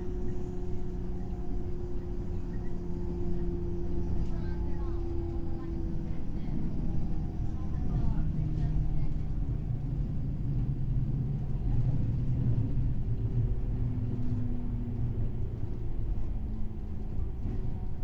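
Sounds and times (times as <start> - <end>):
faint traction motor hum: 0.0 - 10.0
train wheels rumbling on rail: 0.0 - 18.0.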